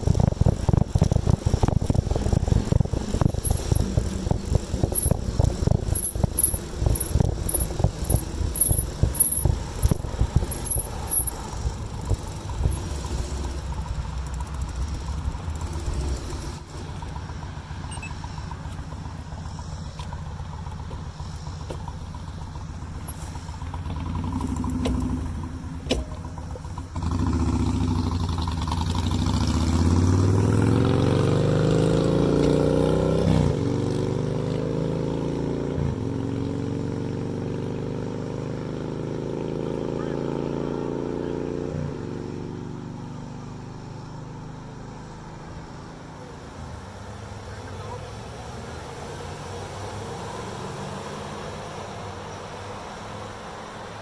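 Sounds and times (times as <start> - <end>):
wind rumble on microphone: 0.0 - 14.3
vehicle engine hum: 0.0 - 54.0.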